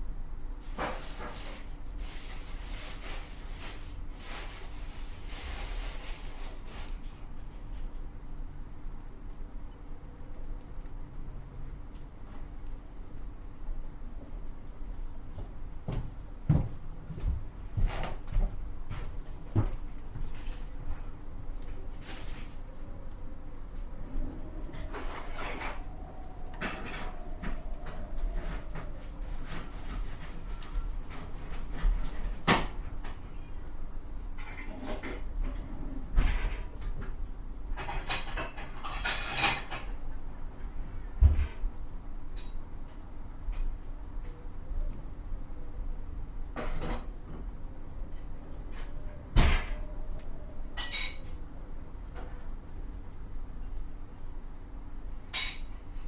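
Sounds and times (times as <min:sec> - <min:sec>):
rustle: 0:00.5 - 0:08.6, 0:19.8 - 0:35.0
pots and utensils clattering: 0:24.8 - 0:32.7, 0:37.8 - 0:40.0, 0:50.8 - 0:51.4, 0:55.3 - 0:55.8.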